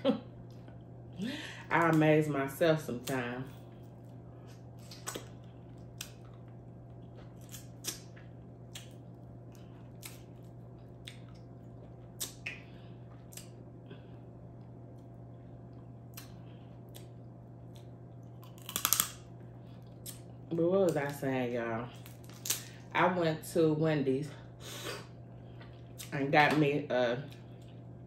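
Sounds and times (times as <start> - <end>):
steady low hum: 0.0 - 28.0
chewing clicks and smacks: 4.8 - 13.6.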